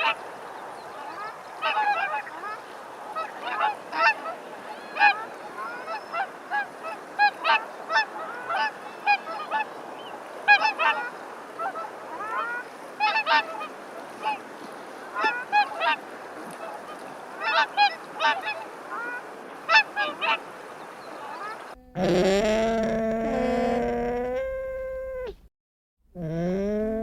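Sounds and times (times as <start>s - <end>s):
waterfowl honking: 1.1s - 2.6s, 3.2s - 9.7s, 10.5s - 14.4s, 16.9s - 20.5s, 21.3s - 23.9s.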